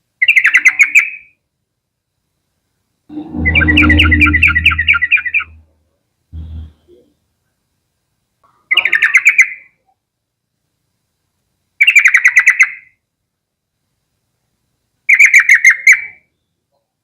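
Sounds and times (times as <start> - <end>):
bulbul singing: 3.1 - 5.6.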